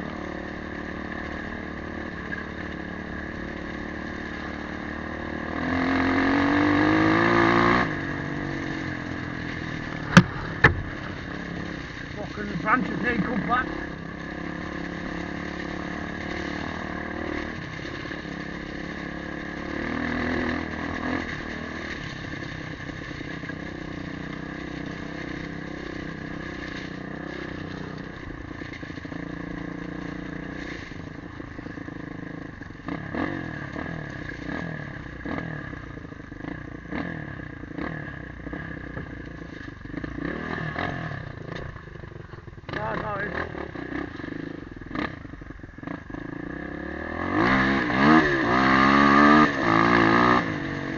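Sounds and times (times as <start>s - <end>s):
motorcycle engine running: 0.0s - 50.9s
sharp knocks and clatter: 10.0s - 11.2s.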